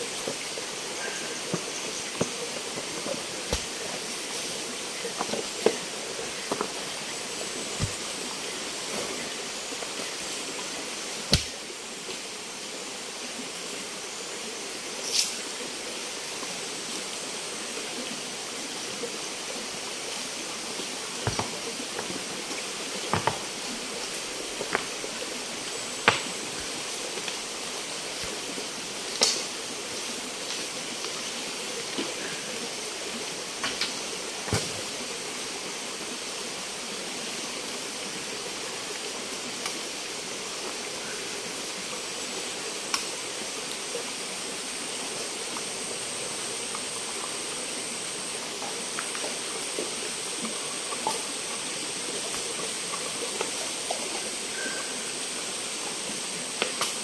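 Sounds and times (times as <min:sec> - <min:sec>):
stream rushing: 0:19.3 - 0:29.0.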